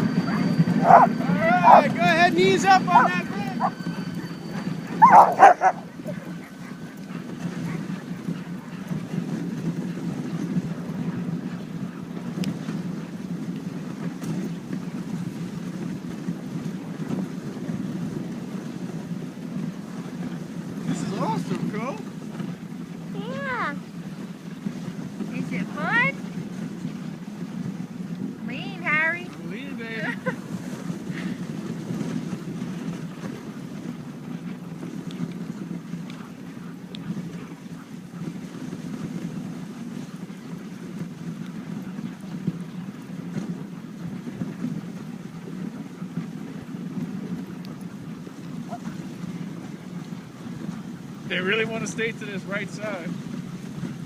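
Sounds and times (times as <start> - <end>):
sled gliding over snow: 0.0 - 54.0
wind buffeting microphone: 0.0 - 54.0
faint ticks: 12.4 - 12.6.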